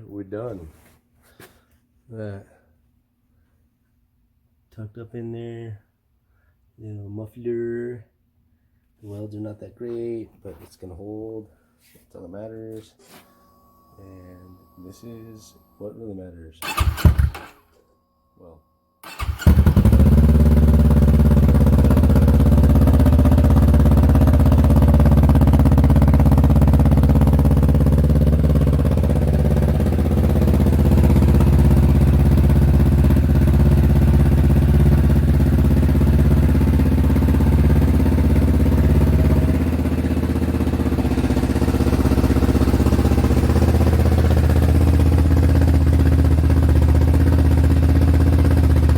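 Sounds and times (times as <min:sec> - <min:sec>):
motorcycle engine idling: 0:16.6 - 0:17.5, 0:19.0 - 0:48.9.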